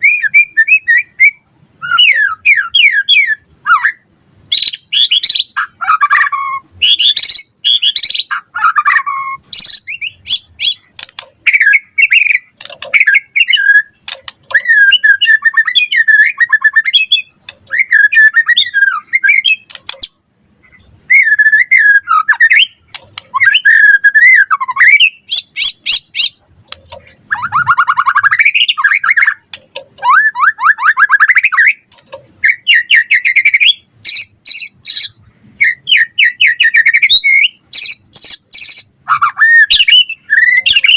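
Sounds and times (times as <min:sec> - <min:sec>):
bird singing: 0:00.0 - 0:40.9.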